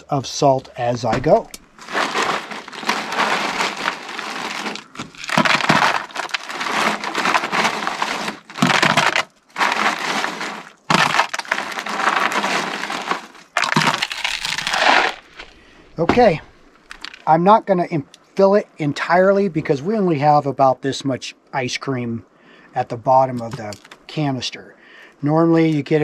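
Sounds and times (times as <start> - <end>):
ice cubes crunching and clattering: 0.8 - 17.3.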